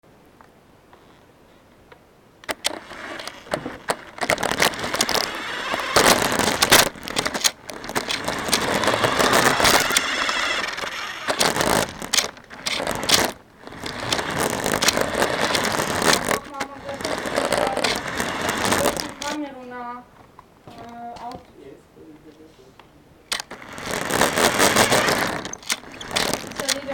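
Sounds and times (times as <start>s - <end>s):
camera rattling and scraping: 2.4s - 19.7s, 23.3s - 26.9s.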